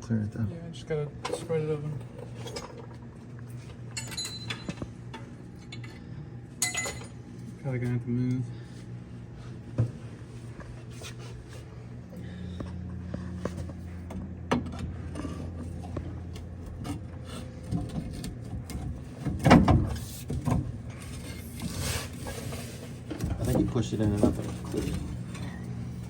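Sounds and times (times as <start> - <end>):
low hum: 0.0 - 19.4.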